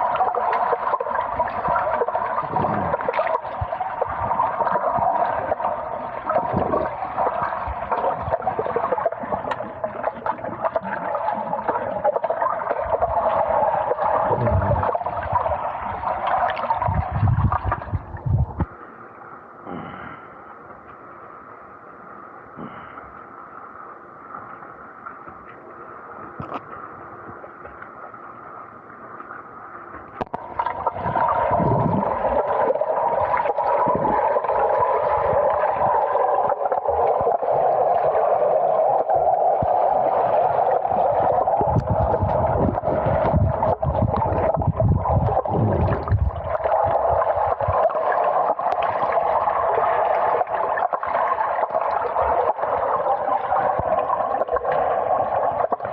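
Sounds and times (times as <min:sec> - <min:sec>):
underwater gurgling rush: 0:00.0 - 0:18.7, 0:30.1 - 0:55.9.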